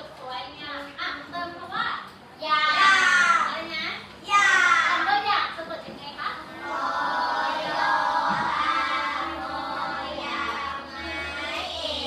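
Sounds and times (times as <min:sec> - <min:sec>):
children singing in unison: 0:06.6 - 0:12.0.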